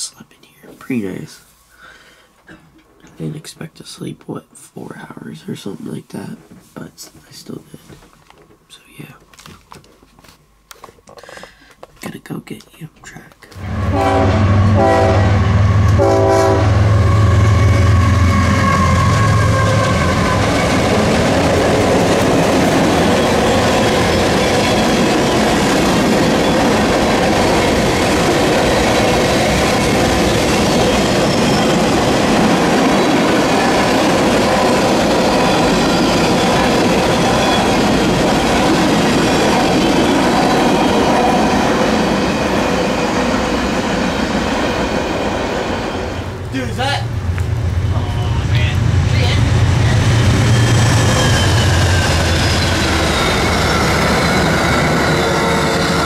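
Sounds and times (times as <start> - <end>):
locomotive horn: 13.6 - 20.8.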